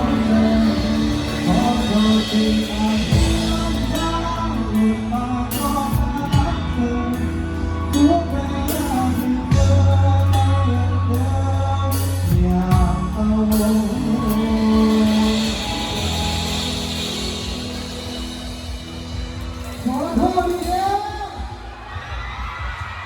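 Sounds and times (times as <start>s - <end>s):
person singing: 0.0s - 18.4s
live band music: 0.0s - 22.3s
cymbal crashes: 14.9s - 20.8s.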